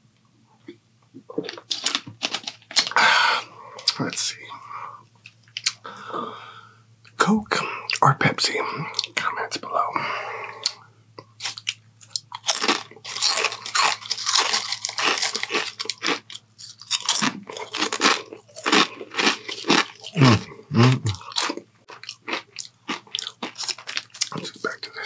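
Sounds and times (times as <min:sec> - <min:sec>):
chewing crisp potato chips: 0:01.3 - 0:03.0, 0:11.4 - 0:25.0.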